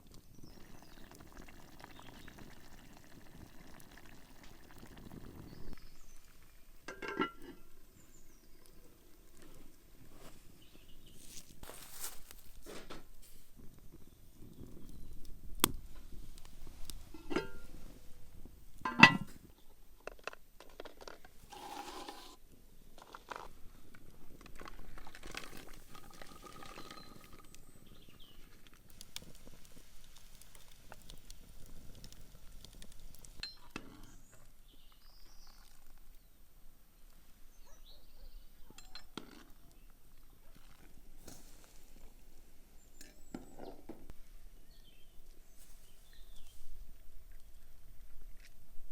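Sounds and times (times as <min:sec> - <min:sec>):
cutlery and dishes clinking: 0:06.9 - 0:07.6, 0:18.9 - 0:19.3
handling noises: 0:11.1 - 0:13.6.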